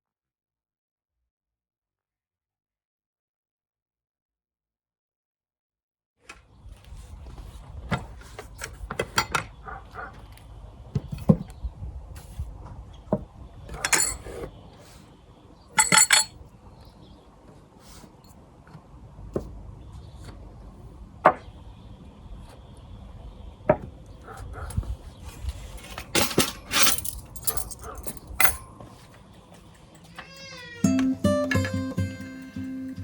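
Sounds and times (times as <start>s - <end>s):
rustling or scraping: 6.4s - 13.1s, 24.4s - 30.6s
objects knocking and clinking: 15.8s - 16.4s.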